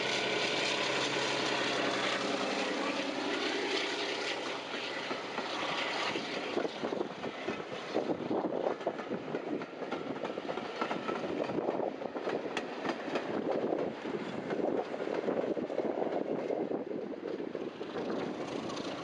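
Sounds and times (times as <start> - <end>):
train wheels clattering over rail joints: 3.8 - 19.0.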